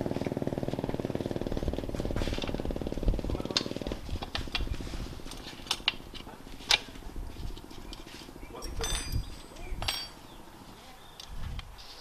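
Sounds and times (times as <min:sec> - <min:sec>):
motorbike engine idling: 0:00.0 - 0:11.2
metallic tool clinks: 0:08.6 - 0:10.2.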